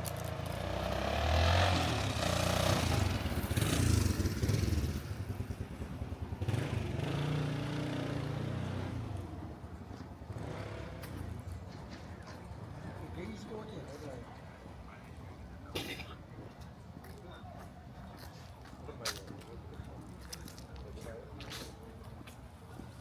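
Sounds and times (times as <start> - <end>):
vehicle engine passing by: 0.0 - 5.6, 6.4 - 9.5, 10.3 - 11.5.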